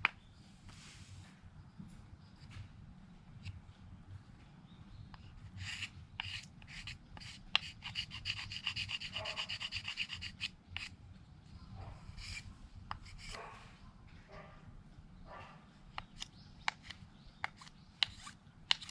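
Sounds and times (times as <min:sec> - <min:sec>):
knife scraping wood: 0:05.5 - 0:10.9, 0:16.0 - 0:18.9.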